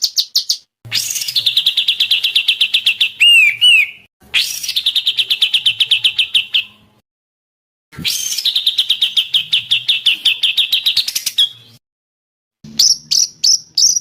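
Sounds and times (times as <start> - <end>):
songbird trilling: 2.4 - 4.0
loud arching whistles: 3.2 - 4.1.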